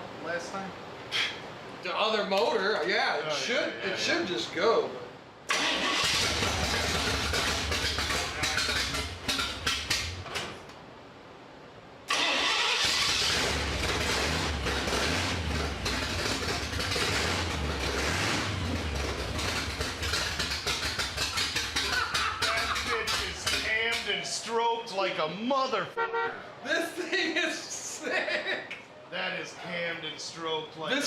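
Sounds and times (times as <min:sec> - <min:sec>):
engine with choppy idle: 0:05.5 - 0:10.3, 0:12.8 - 0:24.0.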